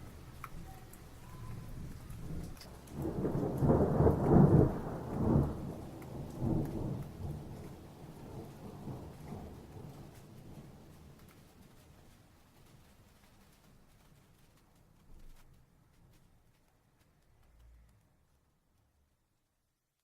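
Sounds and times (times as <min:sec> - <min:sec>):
thunder rumbling: 0:00.0 - 0:11.2
rain hissing: 0:00.0 - 0:14.7.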